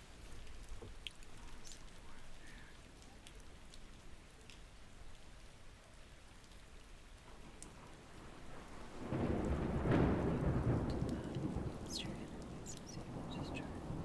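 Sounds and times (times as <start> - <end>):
steady faint rain: 0.0 - 14.0
light ticks: 0.4 - 5.2, 7.6 - 7.8.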